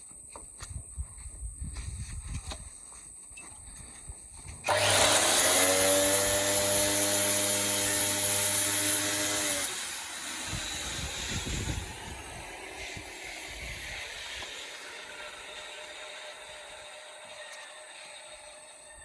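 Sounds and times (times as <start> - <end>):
angle grinder grinding steel: 4.7 - 19.0.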